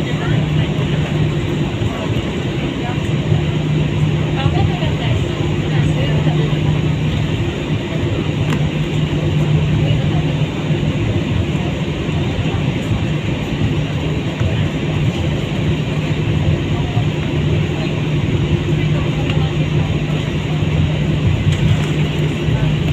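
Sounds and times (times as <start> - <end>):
airliner cabin drone: 0.0 - 22.9.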